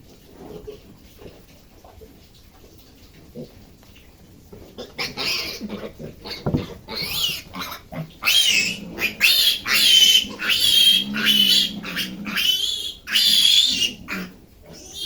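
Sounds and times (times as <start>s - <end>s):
piglet squealing: 4.9s - 15.0s.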